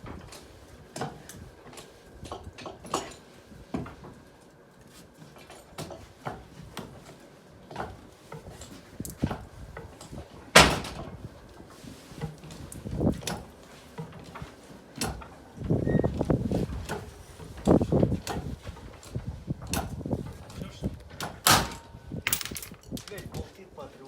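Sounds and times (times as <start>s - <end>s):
metallic knocks and clanks: 21.5s - 23.2s.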